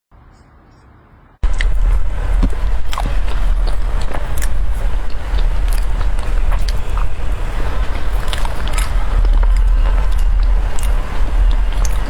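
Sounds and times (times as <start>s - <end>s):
loud low rumble: 1.2s - 12.0s
food packaging crackling: 1.5s - 12.0s.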